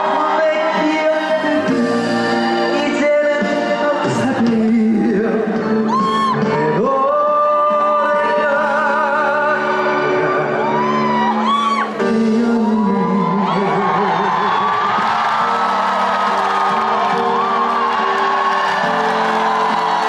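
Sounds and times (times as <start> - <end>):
man singing with vibrato: 0.0 - 11.0, 11.7 - 15.0
live band accompaniment: 0.0 - 20.0.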